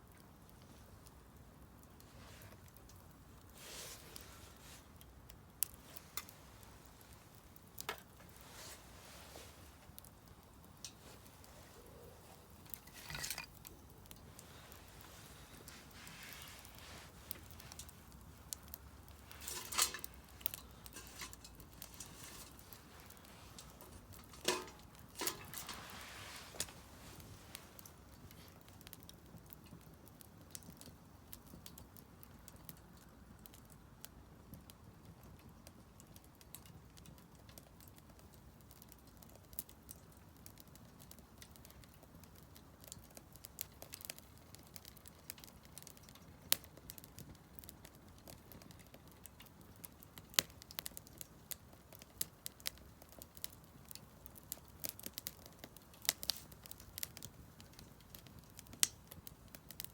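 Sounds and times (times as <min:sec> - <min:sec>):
firewood crackling and popping: 0:00.0 - 0:59.9
flame rustling: 0:00.2 - 0:33.6, 0:36.6 - 0:59.9.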